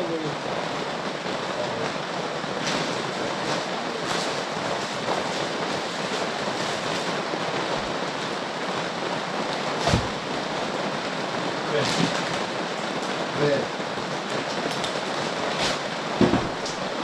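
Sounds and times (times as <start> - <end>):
heavy rain falling: 0.0 - 17.0
low thump: 16.2 - 16.6.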